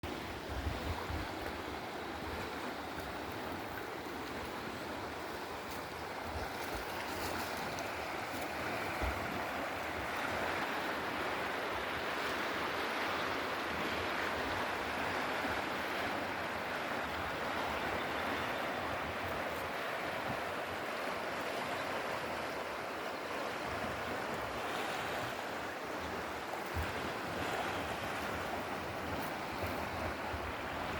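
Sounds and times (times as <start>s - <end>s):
rushing water: 0.0s - 30.9s.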